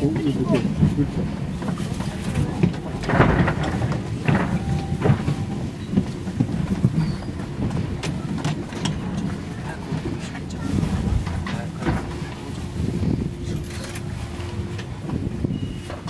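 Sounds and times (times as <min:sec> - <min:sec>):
train wheels rumbling on track: 0:00.0 - 0:16.0
wheels clacking over rail joints: 0:00.0 - 0:16.0.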